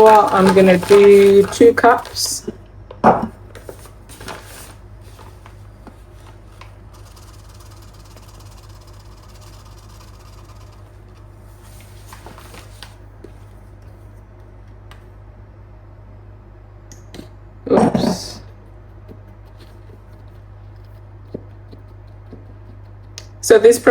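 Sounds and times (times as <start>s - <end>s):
flour being sifted: 0.0s - 2.4s, 3.6s - 13.6s.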